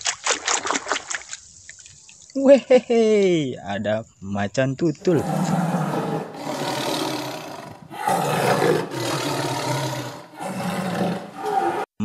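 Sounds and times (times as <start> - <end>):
big cat roaring: 5.1 - 11.9.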